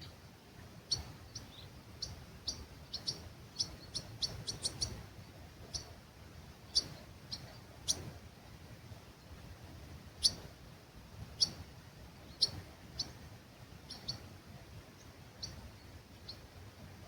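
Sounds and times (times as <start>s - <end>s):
bird chirping: 0.9s - 6.0s, 6.7s - 8.1s, 10.2s - 10.4s, 11.4s - 11.6s, 12.3s - 13.2s, 13.8s - 14.3s, 15.0s - 16.5s.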